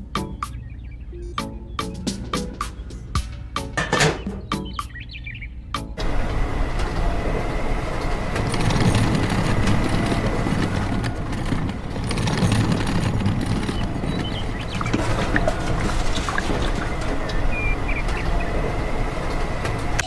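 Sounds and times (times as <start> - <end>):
small machine motor rumble: 6.0 - 20.0.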